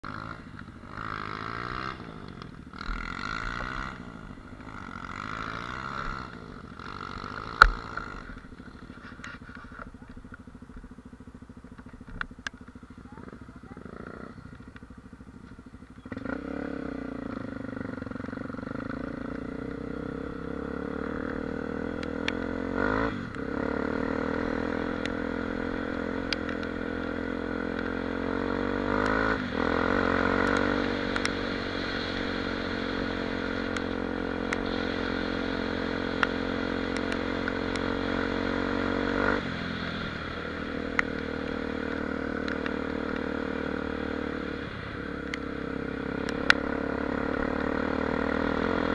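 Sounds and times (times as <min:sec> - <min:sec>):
motorcycle engine running: 0:00.0 - 0:48.9
light ticks: 0:11.7 - 0:13.4, 0:14.6 - 0:16.0, 0:22.0 - 0:22.5, 0:26.2 - 0:26.8, 0:30.4 - 0:31.4, 0:36.1 - 0:37.9, 0:40.9 - 0:43.3, 0:45.2 - 0:45.5, 0:46.2 - 0:46.6.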